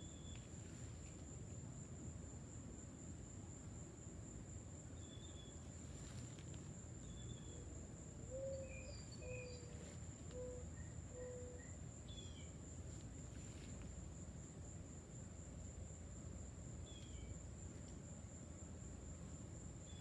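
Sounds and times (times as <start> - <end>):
high-pitched insect trill: 19.8 - 20.0.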